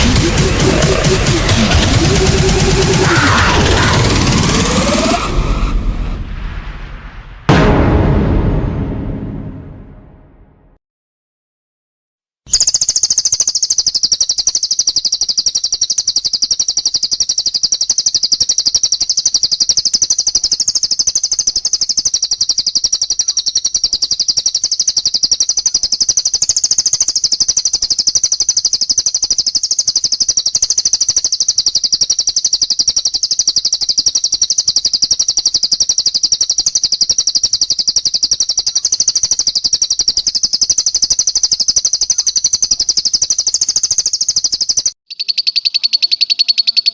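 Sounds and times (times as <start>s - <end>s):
songbird trilling: 12.5s - 46.9s.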